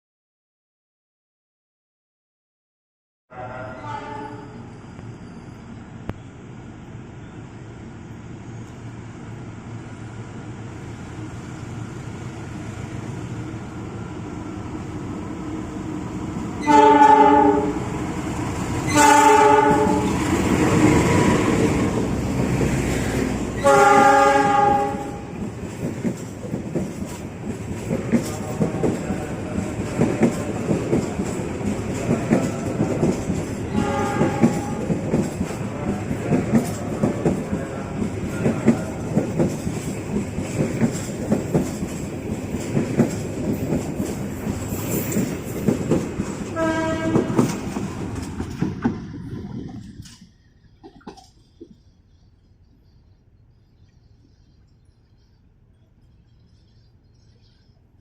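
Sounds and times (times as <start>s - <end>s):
multi-tone train horn blasts: 3.3s - 4.7s, 16.6s - 17.9s, 18.8s - 20.2s, 23.6s - 25.4s, 33.7s - 35.0s, 46.5s - 47.6s
train passing: 3.3s - 58.0s.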